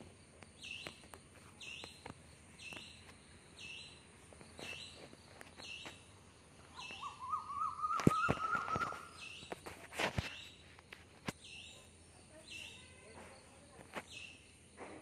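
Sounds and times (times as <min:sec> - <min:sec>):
bird calling: 0:00.6 - 0:10.6
wavering bird warble: 0:06.6 - 0:09.5.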